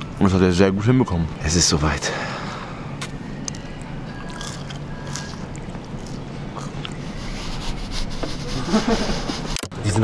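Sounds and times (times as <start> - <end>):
person chewing crunchy food: 3.0 - 7.0.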